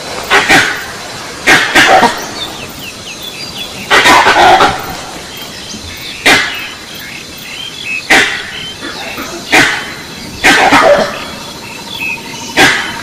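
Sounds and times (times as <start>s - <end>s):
small birds chirping: 0.1s - 13.0s
recorded dog barking from loudspeaker: 1.5s - 2.2s, 9.6s - 11.2s.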